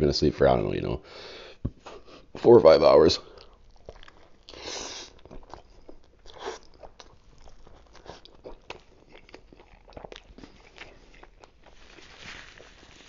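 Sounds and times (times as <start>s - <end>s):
person biting and chewing: 3.4s - 13.0s.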